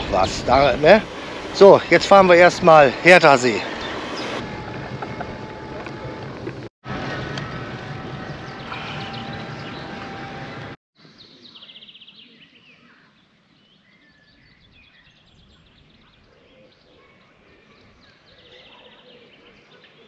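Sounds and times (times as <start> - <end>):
songbirds trilling and chirping: 0.0 - 4.4, 8.4 - 20.0
loud rush of noise: 0.0 - 10.8.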